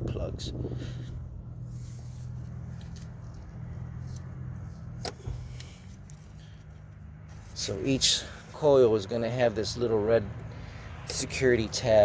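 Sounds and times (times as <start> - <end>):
sharp metallic click: 5.0 - 5.7.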